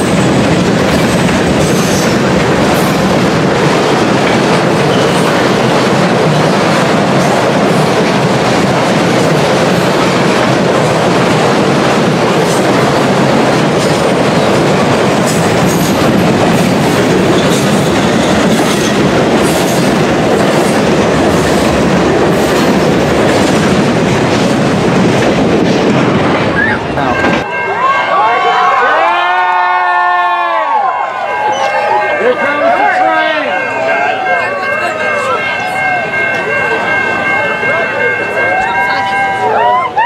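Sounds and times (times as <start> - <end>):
steel wheels rumbling on rail: 0.0 - 27.7.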